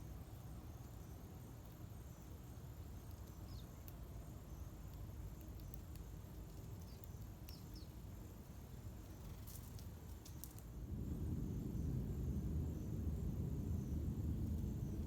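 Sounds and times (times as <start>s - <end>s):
low background rumble: 10.7s - 15.0s.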